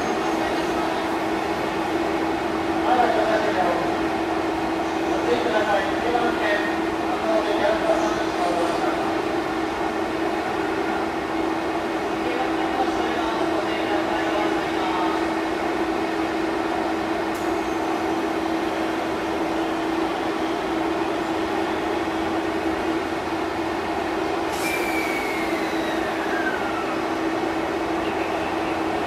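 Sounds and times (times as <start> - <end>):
electric train humming: 0.0 - 29.0
high squeal falling in pitch: 24.6 - 27.0.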